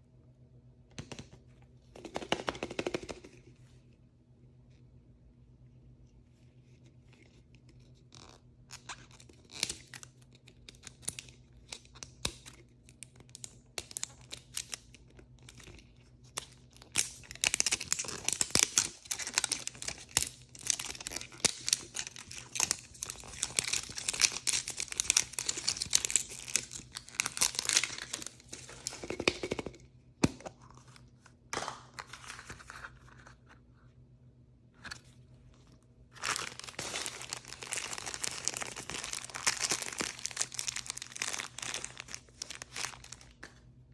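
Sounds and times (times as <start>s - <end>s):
wrapper crinkling and tearing: 16.3s - 29.4s, 36.1s - 43.6s
toy packaging rustling: 16.8s - 29.6s, 36.1s - 43.7s.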